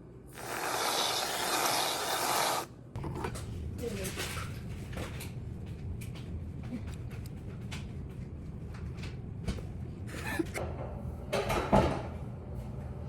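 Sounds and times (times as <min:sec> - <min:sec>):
steady hiss: 0:00.3 - 0:02.7.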